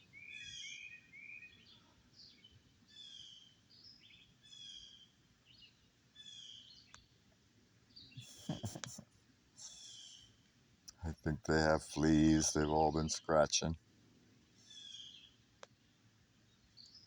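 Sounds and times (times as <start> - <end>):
songbird whistles and chirps: 0.0 - 7.1.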